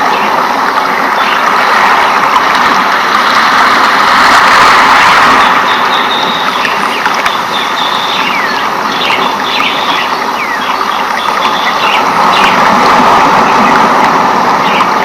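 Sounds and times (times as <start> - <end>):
bird chirps and whistles: 5.4 - 12.6.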